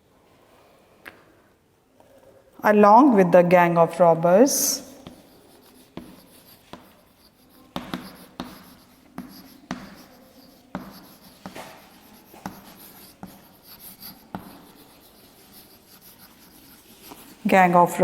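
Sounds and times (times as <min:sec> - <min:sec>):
pen scratching on paper: 0:04.6 - 0:18.0
pen tapping: 0:05.0 - 0:17.4.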